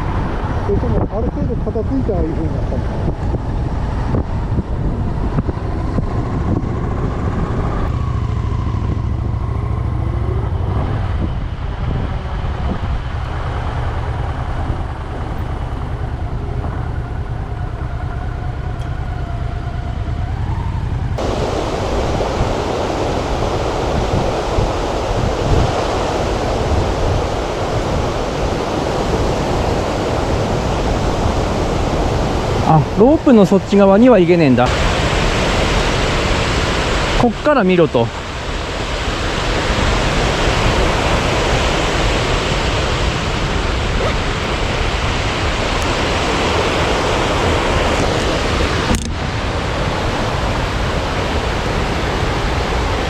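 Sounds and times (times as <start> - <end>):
wind rumbling: 0.0 - 53.0
motorcycle engine: 4.0 - 22.0
waterfall rushing: 21.2 - 53.0.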